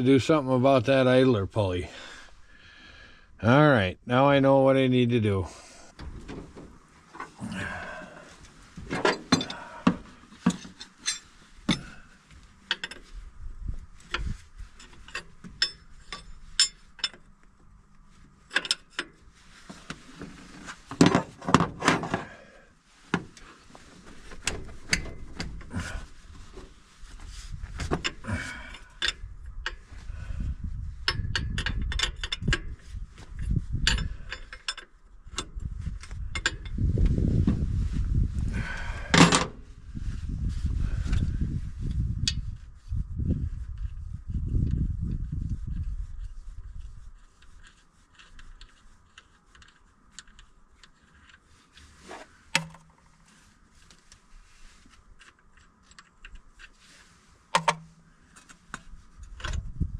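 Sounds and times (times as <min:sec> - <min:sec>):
hand tools clinking on metal: 0:09.0 - 0:09.8.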